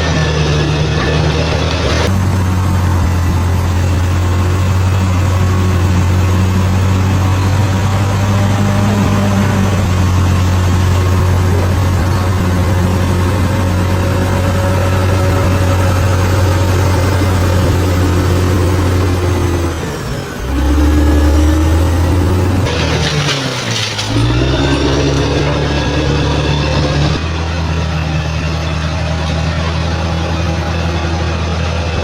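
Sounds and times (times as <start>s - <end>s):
bulldozer diesel engine running: 0.0s - 32.0s.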